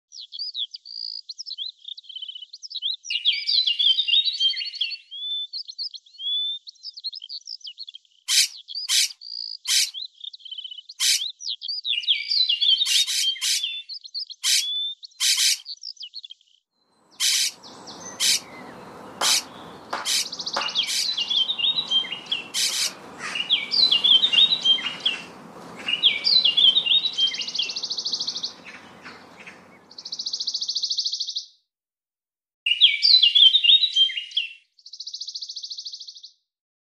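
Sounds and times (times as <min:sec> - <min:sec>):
songbirds chirping and trilling: 0:00.1 - 0:31.2
steady low rushing noise: 0:17.0 - 0:30.0.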